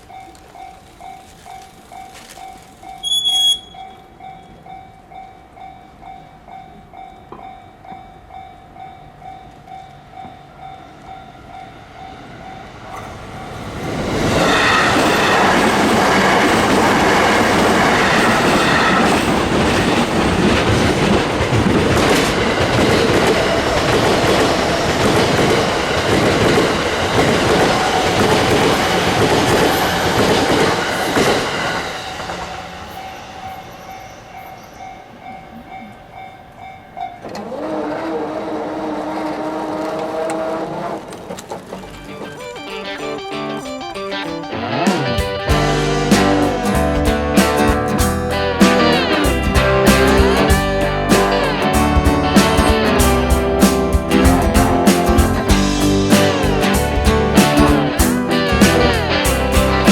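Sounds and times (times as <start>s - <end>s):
crossing warning bell ringing: 0.0s - 37.5s, 41.8s - 53.6s
electric train rushing past: 0.9s - 59.9s
wheels clattering over rail joints: 12.8s - 35.4s, 38.8s - 43.2s.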